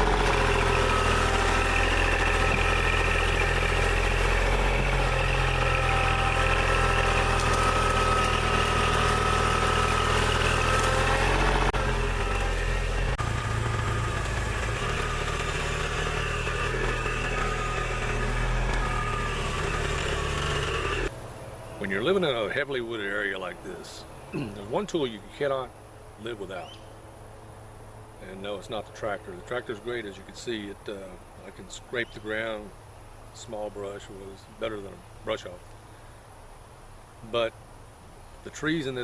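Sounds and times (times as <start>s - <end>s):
tractor diesel engine running: 0.0s - 23.8s.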